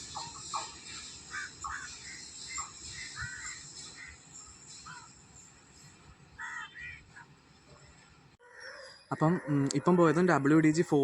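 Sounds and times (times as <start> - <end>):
goods train hiss: 0.0 - 6.6
crows cawing: 1.3 - 4.2, 6.4 - 7.0.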